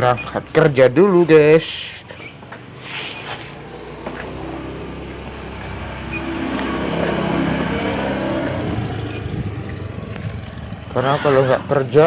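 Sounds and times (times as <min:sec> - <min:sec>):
two-stroke motorcycle engine running: 0:03.9 - 0:12.0.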